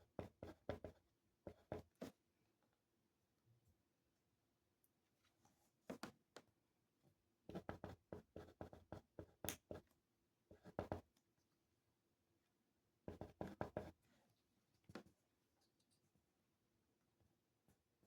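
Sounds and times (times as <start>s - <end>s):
pen scratching on paper: 7.5s - 9.8s, 13.1s - 14.0s.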